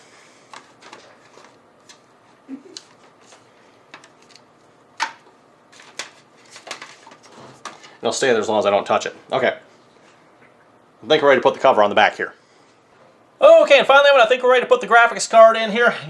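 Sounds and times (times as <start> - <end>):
handling noises: 0.4 - 8.0.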